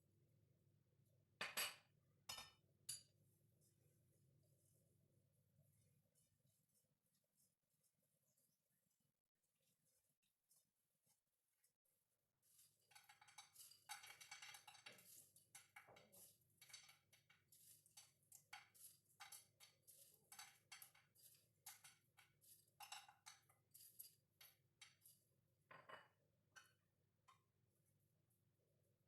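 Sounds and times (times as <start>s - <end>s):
utensils clinking against dishes: 12.8s - 25.2s.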